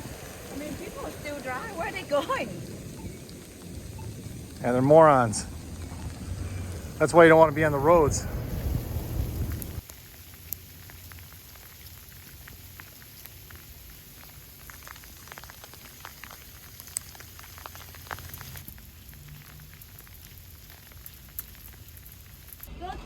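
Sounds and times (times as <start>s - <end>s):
steady low rumble: 0.0s - 9.8s.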